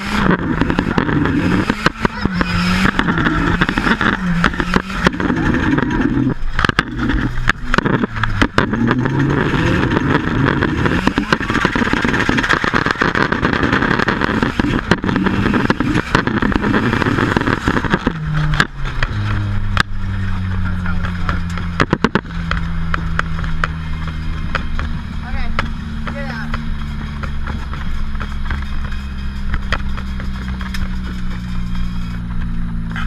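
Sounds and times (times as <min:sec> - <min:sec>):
car engine revving: 0:00.0 - 0:33.0
sharp knocks and clicks: 0:20.8 - 0:33.0.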